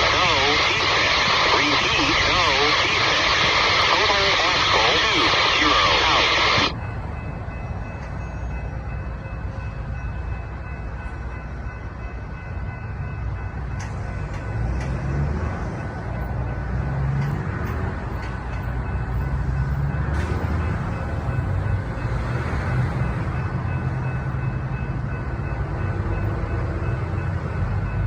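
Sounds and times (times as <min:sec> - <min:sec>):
faint steady tones: 0:00.0 - 0:14.6
train rumbling: 0:00.0 - 0:28.0.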